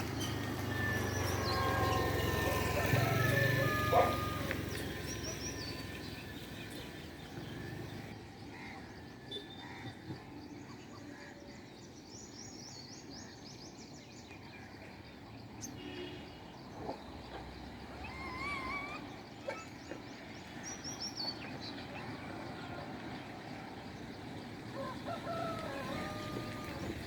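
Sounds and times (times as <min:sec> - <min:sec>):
birds chirping and calling: 0:00.0 - 0:08.8, 0:16.7 - 0:22.2, 0:24.2 - 0:27.0.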